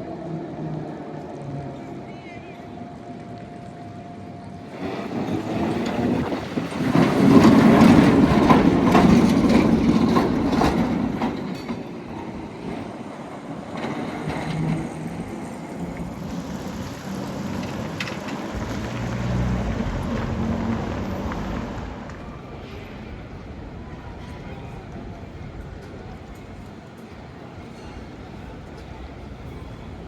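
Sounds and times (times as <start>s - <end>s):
tram running on rails: 0.0s - 30.0s
sharp clicks and clatters: 15.9s - 22.2s.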